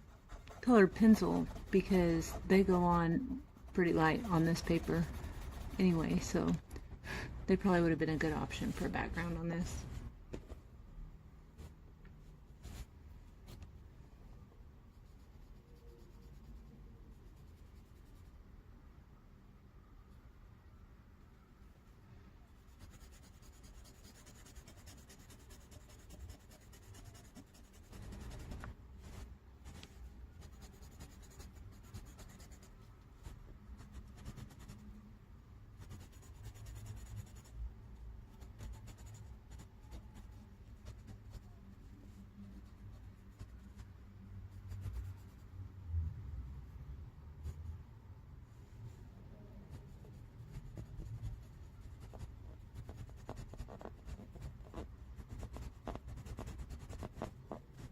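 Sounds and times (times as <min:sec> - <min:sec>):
pen scratching on paper: 0:00.0 - 0:06.6, 0:22.7 - 0:34.8, 0:35.8 - 0:37.6, 0:38.3 - 0:41.8, 0:49.7 - 0:57.9.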